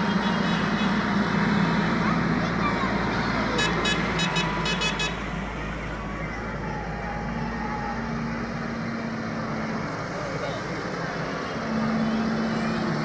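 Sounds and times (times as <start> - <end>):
tractor engines running: 0.0 - 13.0
pulsing horn: 3.6 - 5.2.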